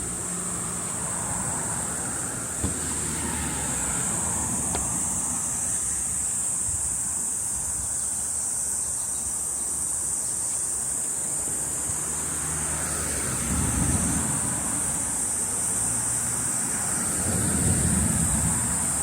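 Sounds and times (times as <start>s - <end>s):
cicadas chorus: 0.0s - 19.0s
wind rumble on microphone: 17.2s - 19.0s.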